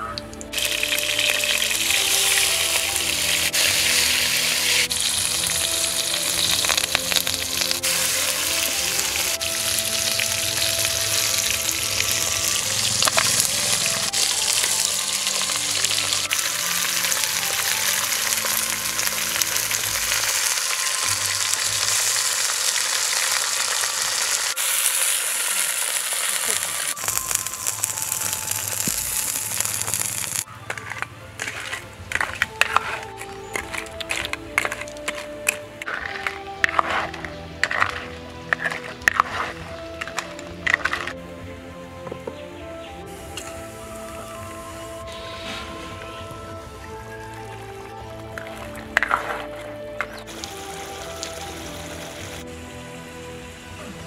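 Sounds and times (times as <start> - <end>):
food frying in hot oil: 0.4 - 30.4.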